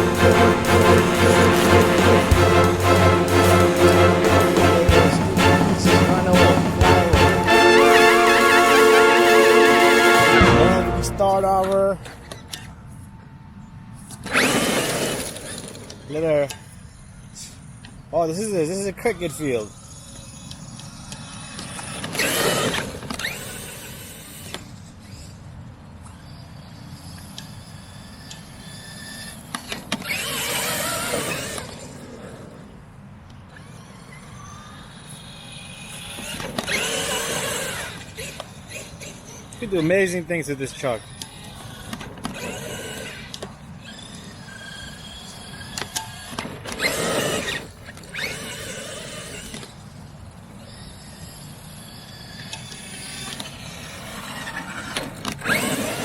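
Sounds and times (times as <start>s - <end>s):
electric motor whining: 0.0s - 7.7s.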